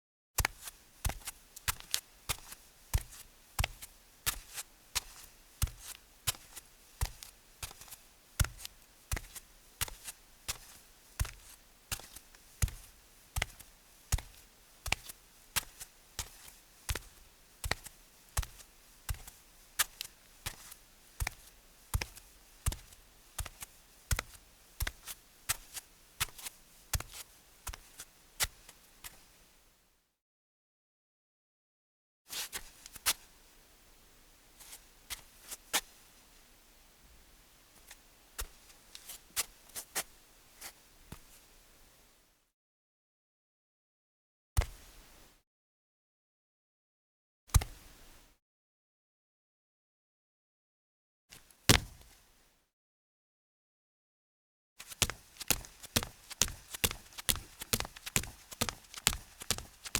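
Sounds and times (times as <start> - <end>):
barefoot footsteps on concrete: 7.0 - 27.1, 54.8 - 59.9.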